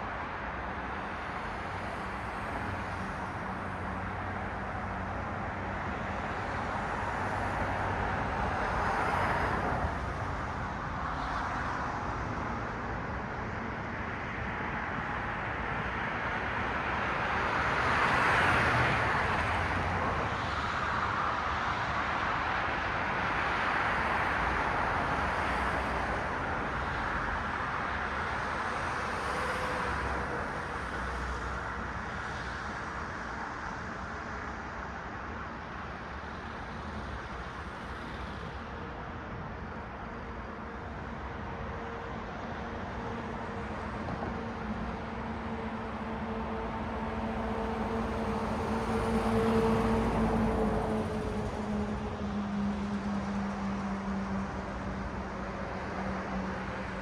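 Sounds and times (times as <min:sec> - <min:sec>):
cars passing on road: 0:00.0 - 0:57.0.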